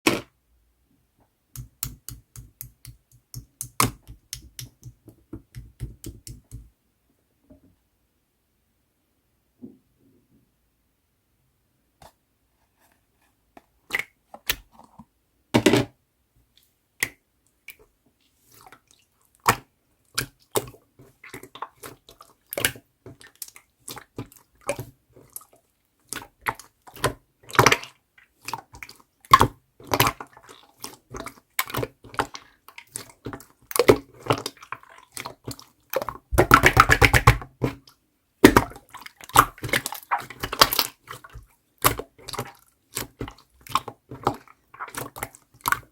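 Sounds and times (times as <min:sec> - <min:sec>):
slime wet squishes: 0:01.5 - 0:06.7, 0:13.8 - 0:14.9, 0:16.6 - 0:45.9
slime bubble pops: 0:36.3 - 0:37.4, 0:38.4 - 0:38.8.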